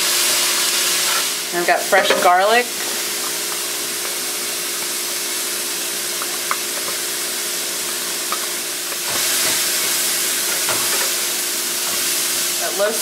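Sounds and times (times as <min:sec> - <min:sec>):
vegetables sizzling in oil: 0:00.0 - 0:13.0
wooden spoon stirring vegetables: 0:01.0 - 0:12.5.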